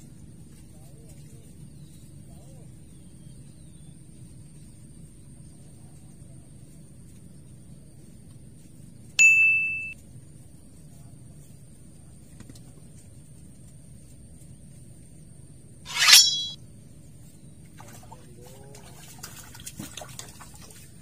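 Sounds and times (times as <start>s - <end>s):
fish splashing in water: 19.1s - 21.0s.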